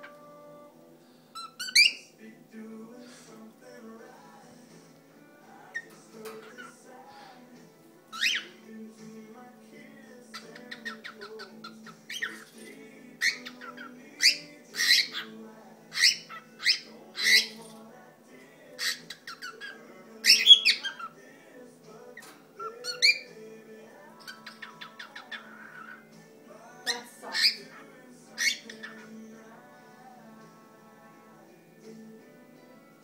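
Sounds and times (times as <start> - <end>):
cockatiel whistling and chirping: 1.4 - 2.1, 8.1 - 8.5, 10.4 - 12.5, 13.2 - 15.3, 15.9 - 17.6, 18.8 - 21.1, 22.6 - 23.3, 24.2 - 26.1, 28.4 - 29.0.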